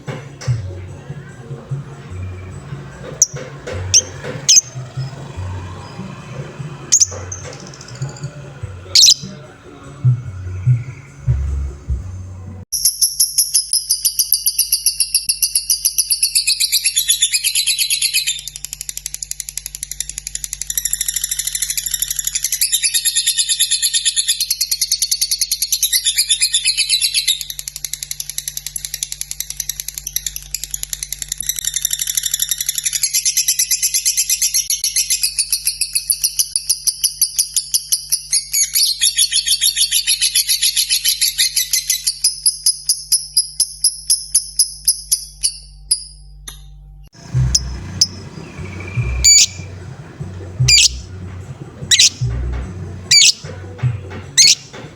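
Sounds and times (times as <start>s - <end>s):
lovebird high-pitched trill: 6.9s - 8.2s, 9.0s - 9.4s, 12.7s - 18.6s, 47.3s - 49.8s, 50.6s - 51.0s, 51.9s - 52.3s, 53.1s - 53.5s, 54.4s - 54.6s.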